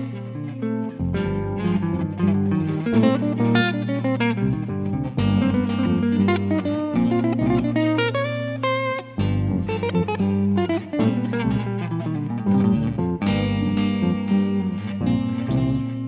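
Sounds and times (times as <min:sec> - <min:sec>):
guitar improvised lines: 0:00.0 - 0:16.0
backing loop with bass: 0:12.6 - 0:16.0.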